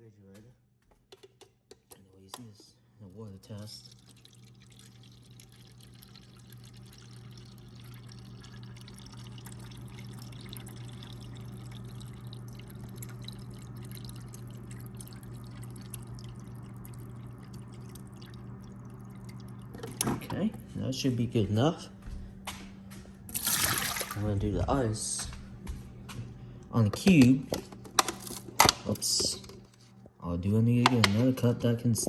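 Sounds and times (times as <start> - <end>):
steady low hum: 0.0 - 32.0
water stream into a cup: 3.3 - 20.2, 23.3 - 24.3.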